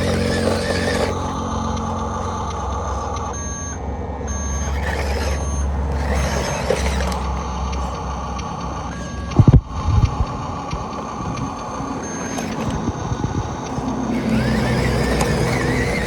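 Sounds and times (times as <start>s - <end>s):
low engine drone: 0.0s - 16.0s
reversing alarm beeping: 0.0s - 16.0s.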